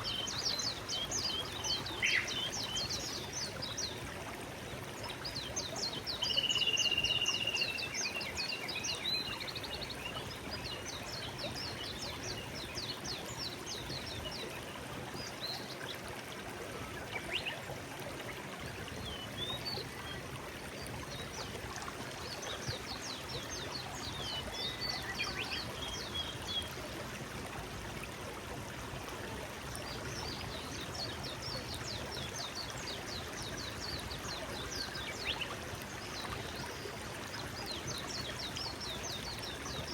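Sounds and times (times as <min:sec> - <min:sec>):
songbirds singing: 0:00.0 - 0:16.0, 0:18.6 - 0:26.8, 0:29.8 - 0:39.9
stream flowing: 0:00.0 - 0:39.9.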